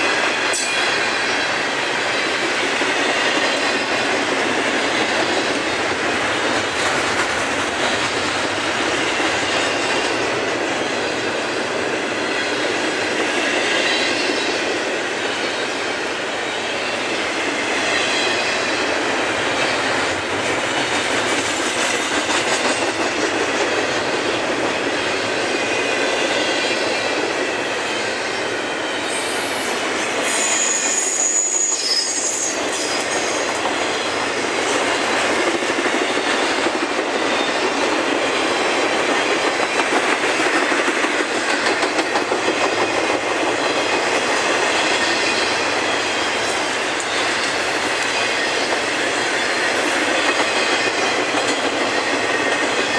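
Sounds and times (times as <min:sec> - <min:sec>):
freight train rolling past: 0:00.0 - 0:52.9
wheel squeal: 0:29.1 - 0:33.5.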